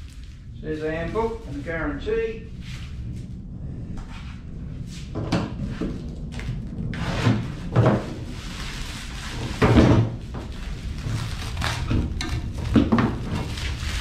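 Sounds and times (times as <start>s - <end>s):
packaging rustling and scraping: 6.3s - 14.0s
objects knocking and thudding: 7.0s - 8.2s, 9.5s - 10.5s, 11.8s - 13.5s.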